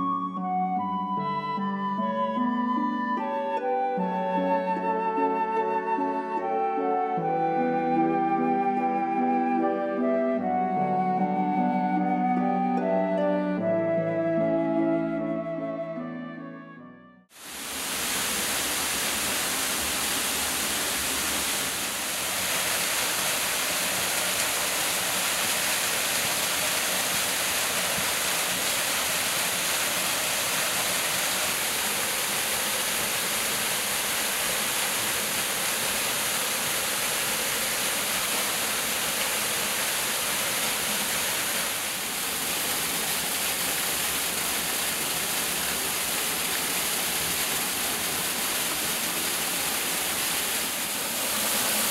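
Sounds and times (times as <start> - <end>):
waterfall rushing: 17.3 - 51.9.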